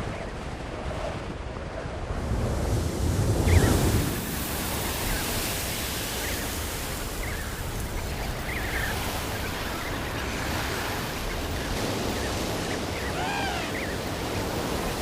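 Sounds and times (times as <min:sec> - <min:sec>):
wind blowing: 0:02.0 - 0:15.0
penguin chicks calling: 0:06.4 - 0:15.0.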